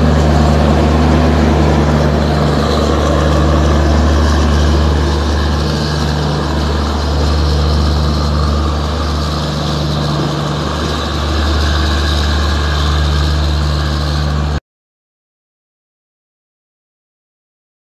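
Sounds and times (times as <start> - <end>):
train mechanical hum: 0.0 - 14.6.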